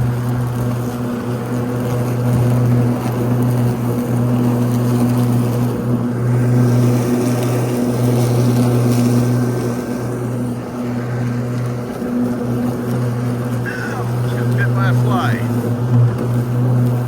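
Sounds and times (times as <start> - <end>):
riding lawn mower humming: 0.0 - 17.0.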